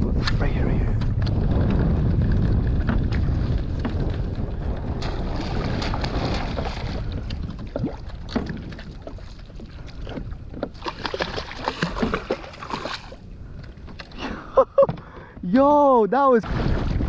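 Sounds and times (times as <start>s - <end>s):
wind rumble on microphone: 0.0s - 15.6s, 16.4s - 17.0s
water sloshing and splashing: 2.0s - 15.2s.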